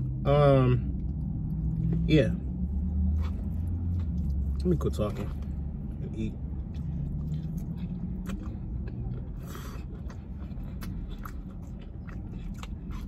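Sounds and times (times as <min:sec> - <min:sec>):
steady low rumble: 0:00.0 - 0:13.0
man chewing noodles: 0:02.6 - 0:13.0.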